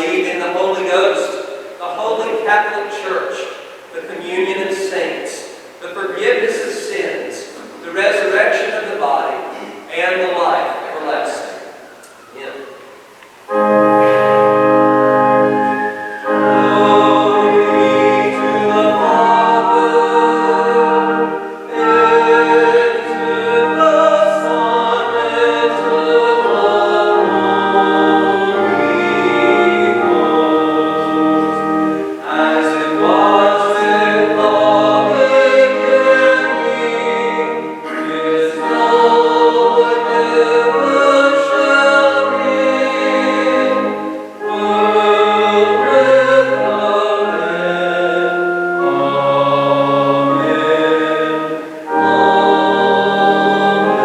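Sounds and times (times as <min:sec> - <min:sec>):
choir singing: 0:10.6 - 0:54.0
instrumental accompaniment: 0:11.8 - 0:54.0.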